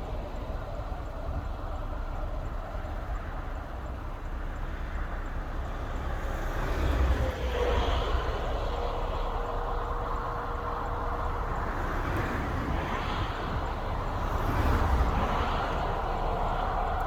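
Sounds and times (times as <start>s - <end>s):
freight train rumbling past: 5.0s - 17.0s.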